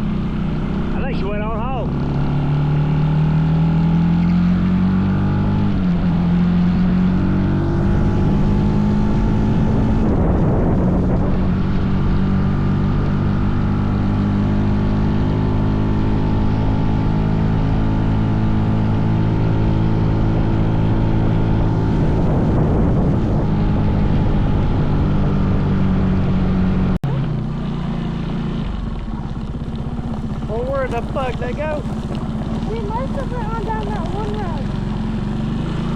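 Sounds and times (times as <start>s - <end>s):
mini bike engine running: 27.1s - 35.9s.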